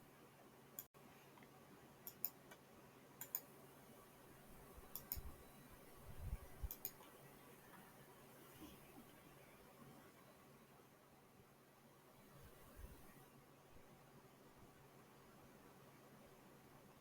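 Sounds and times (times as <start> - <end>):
faint clicks: 0.8 - 2.6, 3.2 - 3.5, 4.9 - 5.3, 6.6 - 7.1.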